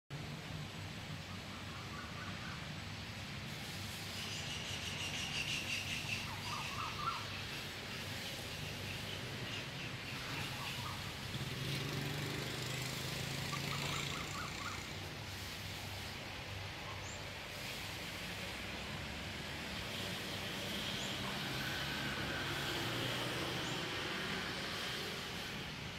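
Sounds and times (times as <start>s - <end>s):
outdoor background noise: 0.1s - 25.9s
birds chirping: 4.3s - 15.0s.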